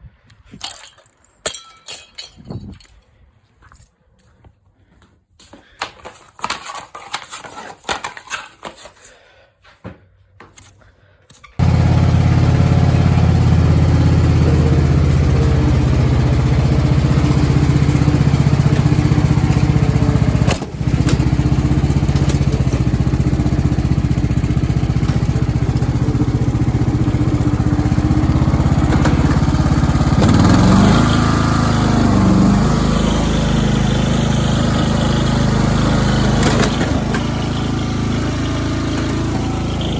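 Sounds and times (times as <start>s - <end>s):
small petrol engine running: 11.6s - 39.9s
clattering knocks and rattles: 14.4s - 23.6s.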